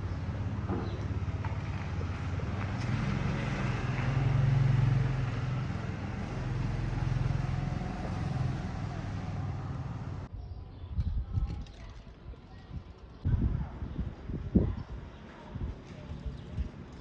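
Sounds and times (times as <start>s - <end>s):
vehicle engine humming: 0.0s - 10.3s.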